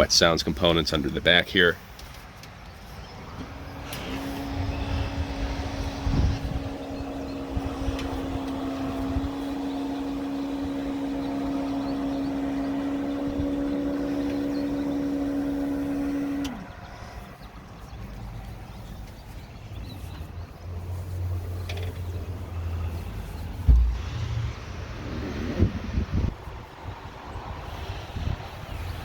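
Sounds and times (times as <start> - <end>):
small electric motor humming: 3.8 - 17.5.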